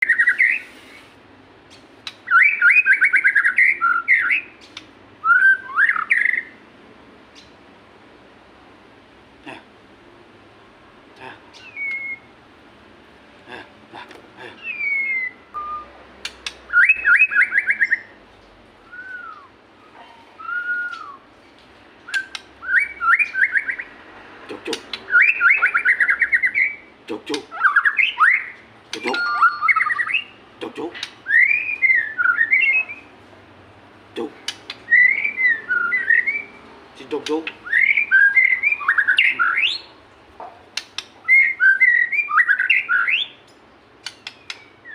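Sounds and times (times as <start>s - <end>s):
bird singing whistled notes: 0.0s - 0.8s, 2.2s - 6.6s, 11.6s - 12.3s, 14.6s - 18.2s, 18.8s - 19.6s, 20.4s - 21.3s, 22.0s - 23.9s, 25.1s - 26.9s, 27.5s - 30.4s, 31.0s - 33.1s, 34.9s - 36.6s, 37.5s - 40.0s, 41.2s - 44.9s
sharp clicks: 16.2s - 16.6s, 34.4s - 34.8s, 40.8s - 41.2s, 43.5s - 44.7s.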